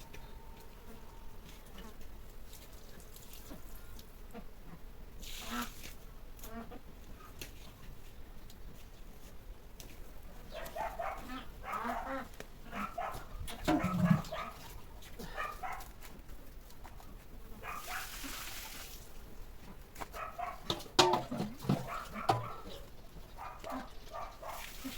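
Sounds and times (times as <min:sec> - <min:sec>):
dog barking: 0:10.5 - 0:15.9, 0:17.6 - 0:18.2, 0:20.1 - 0:20.8, 0:21.8 - 0:22.8, 0:23.4 - 0:24.7.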